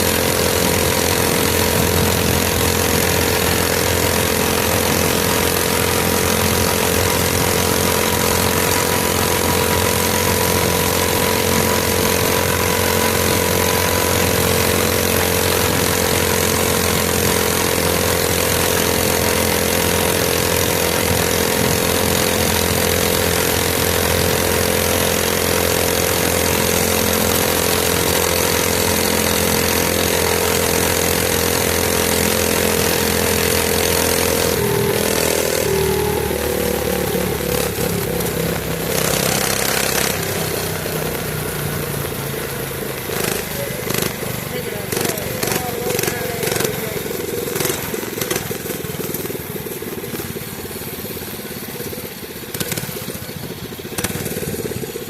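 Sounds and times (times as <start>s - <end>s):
small single-cylinder engine running: 0.0s - 55.0s.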